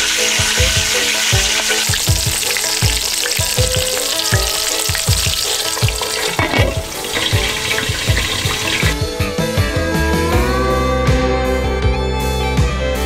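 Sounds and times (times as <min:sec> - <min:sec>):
fish frying in hot oil: 0:00.0 - 0:09.0
background music with a beat: 0:00.0 - 0:13.0.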